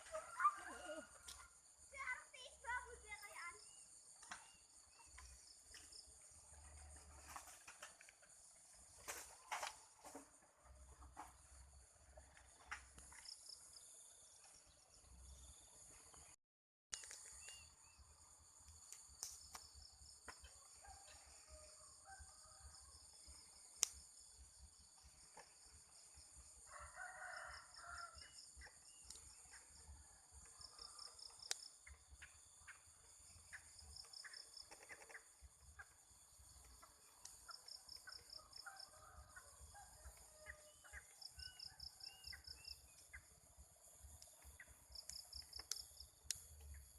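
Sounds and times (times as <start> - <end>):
insect chirring: 17.0 - 46.9
rooster crowing: 26.6 - 28.3.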